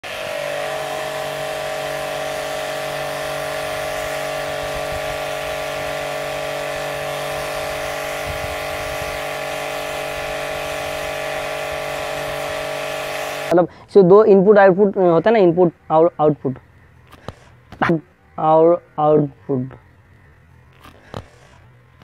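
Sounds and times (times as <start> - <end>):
pressure washer motor whine: 0.0 - 13.6
water jet hissing: 0.0 - 13.6.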